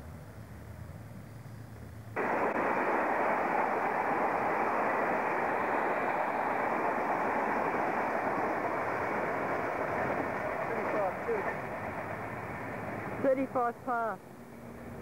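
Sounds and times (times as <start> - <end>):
train wheels rumbling on rail: 2.2 - 13.3.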